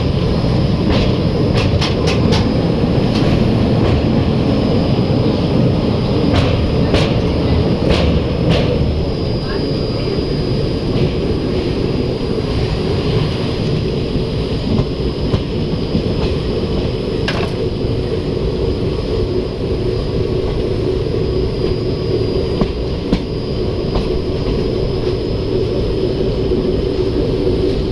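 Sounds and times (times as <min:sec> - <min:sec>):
wheels clicking over rail joints: 0:00.0 - 0:17.9
train rumbling: 0:00.0 - 0:27.9.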